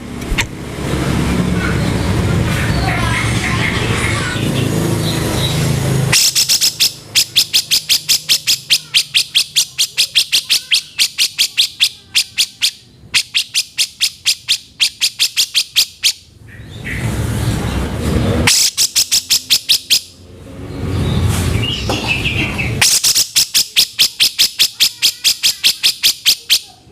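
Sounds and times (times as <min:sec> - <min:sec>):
rough noise: 0:00.0 - 0:06.3
bird rasping notes: 0:01.7 - 0:17.1, 0:18.4 - 0:20.2, 0:20.8 - 0:26.8.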